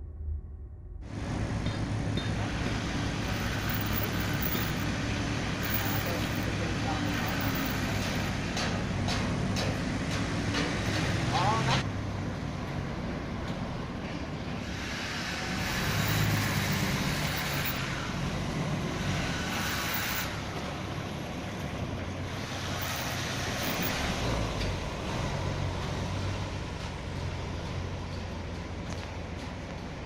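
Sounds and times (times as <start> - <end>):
diesel engine running: 0.1 - 30.0
rushing hiss: 2.4 - 8.3, 14.6 - 17.9, 19.0 - 20.5.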